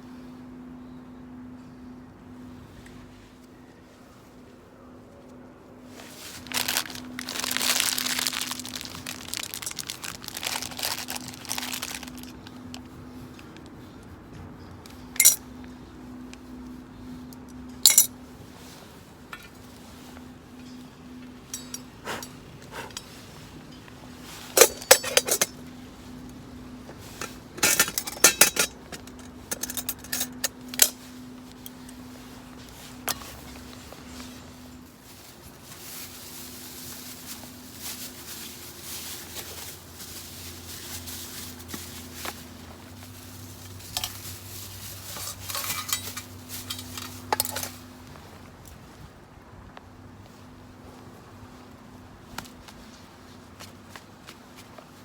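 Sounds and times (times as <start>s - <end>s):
faint steady hum: 0.0s - 55.0s
metal cookware clinking: 21.4s - 22.3s, 24.5s - 25.6s, 27.1s - 31.0s, 43.9s - 44.2s, 45.1s - 47.8s
metal cookware scraping: 21.4s - 23.1s, 24.5s - 25.6s, 27.1s - 31.0s, 45.1s - 47.8s.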